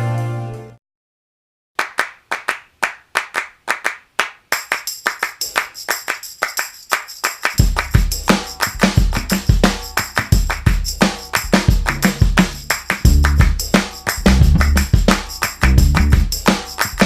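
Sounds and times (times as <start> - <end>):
rhythmic hand claps: 1.8 - 17.0
tambourine jingling: 4.5 - 17.0
kick drum: 7.6 - 17.0.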